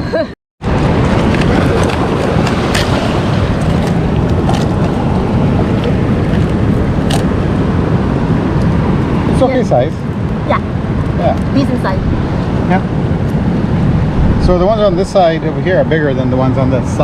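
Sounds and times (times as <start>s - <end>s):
ocean surf: 0.6s - 14.4s
wind on microphone: 0.6s - 17.0s.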